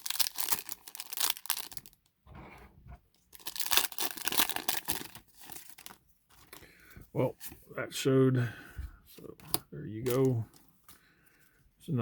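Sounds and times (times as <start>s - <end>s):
foil wrapper crinkling and tearing: 0.0s - 2.0s, 3.3s - 6.7s.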